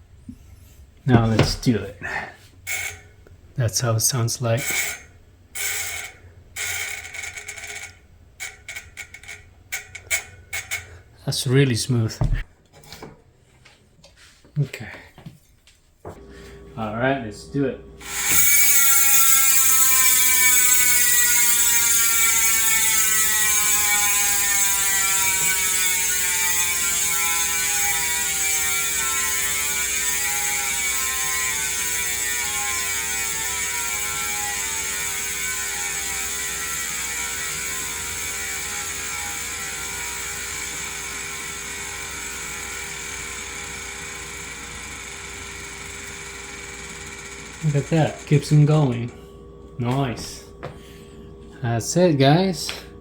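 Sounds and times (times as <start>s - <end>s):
bicycle hub ratcheting buzz: 2.6s - 3.3s, 4.6s - 11.2s, 18.0s - 49.0s.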